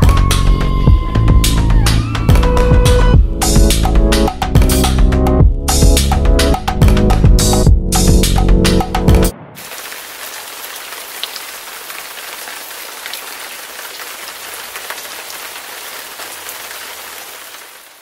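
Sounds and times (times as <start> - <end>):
rain hissing: 9.3 - 18.0.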